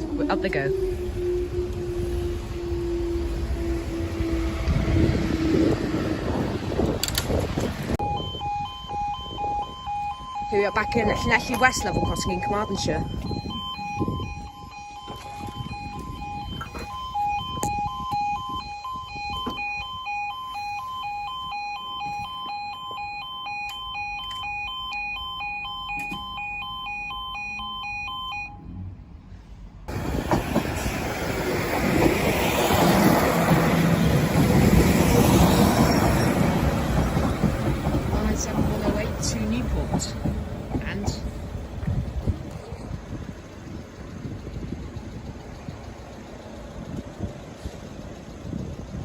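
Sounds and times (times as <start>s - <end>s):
level crossing alarm: 0.0s - 6.0s, 8.0s - 28.8s, 29.9s - 41.8s
train passing rumble: 0.0s - 9.4s, 28.7s - 49.0s.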